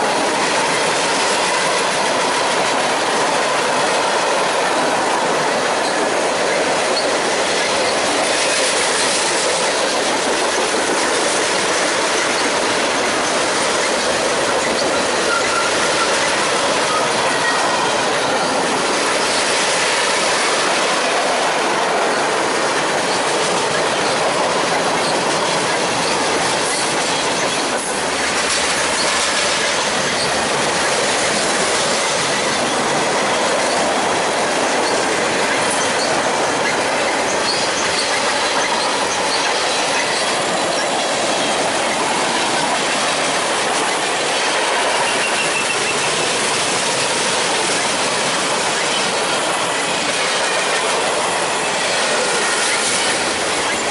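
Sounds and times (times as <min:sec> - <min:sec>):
train wheels rushing on rail: 0:00.0 - 0:53.9
faint wheel squeals: 0:14.7 - 0:16.2.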